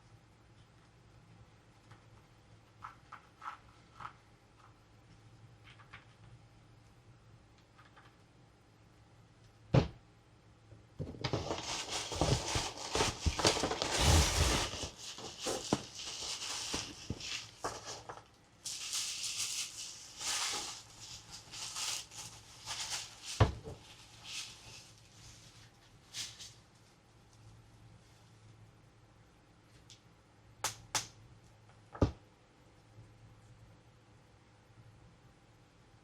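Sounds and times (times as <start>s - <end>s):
plastic packaging crinkling: 11.2s - 26.6s.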